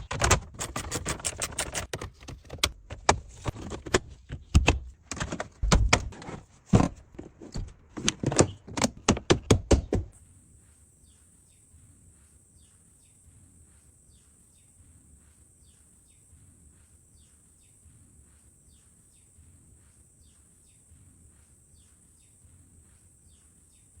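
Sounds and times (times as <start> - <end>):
sharp clicks and knocks: 0.0 - 10.2.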